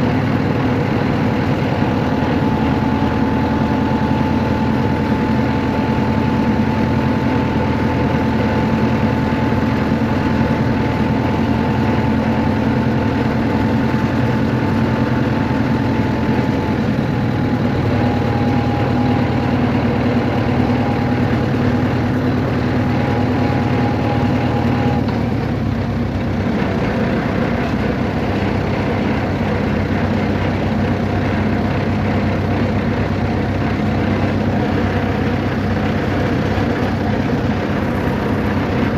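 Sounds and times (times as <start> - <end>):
high-pitched whine: 0.0 - 25.2
motor vehicle engine hum: 0.0 - 38.9.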